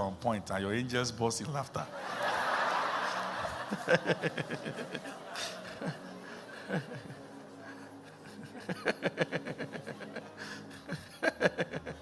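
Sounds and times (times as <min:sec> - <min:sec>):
person laughing: 0:08.1 - 0:12.0.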